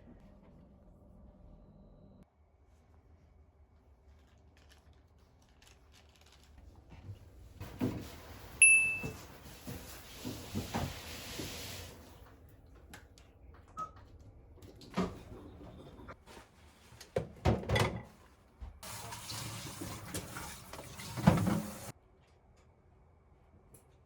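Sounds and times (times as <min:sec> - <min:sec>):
kitchen items knocking and clattering: 0:07.0 - 0:11.6, 0:17.2 - 0:18.2, 0:19.8 - 0:21.9
electronic appliance beep: 0:08.6 - 0:09.2.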